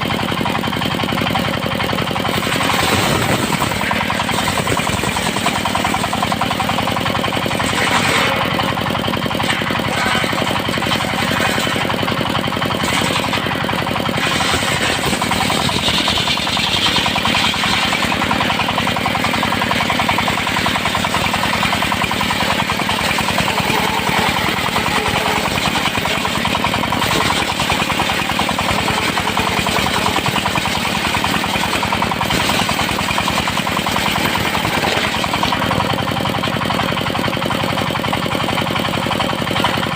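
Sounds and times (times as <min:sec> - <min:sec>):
engine firing pulses: 0:01.9 - 0:33.1
circular saw ripping wood: 0:01.9 - 0:36.2.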